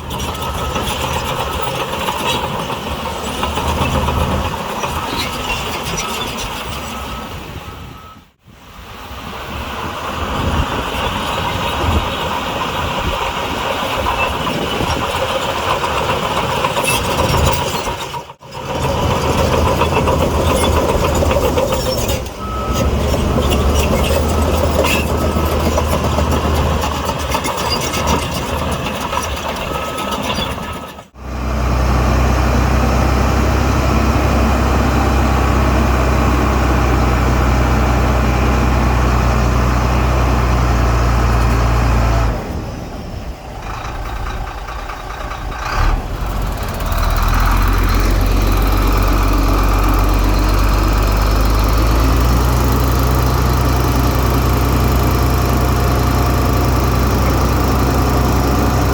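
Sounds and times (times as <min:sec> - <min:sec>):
heavy diesel engines running: 0:00.0 - 0:58.9
reversing alarm beeps: 0:05.8 - 0:08.3, 0:22.4 - 0:23.0.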